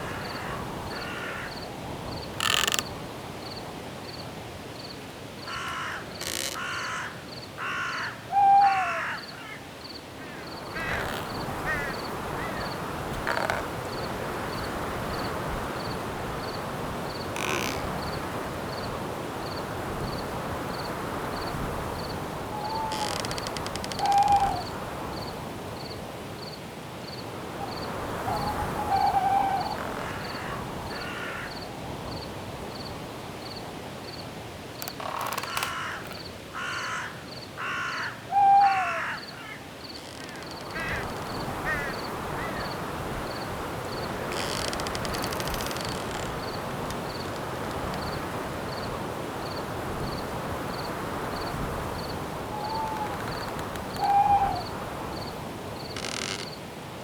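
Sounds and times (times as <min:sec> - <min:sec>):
cricket chirping: 0:00.0 - 0:56.6
wind in the trees: 0:00.0 - 0:57.0.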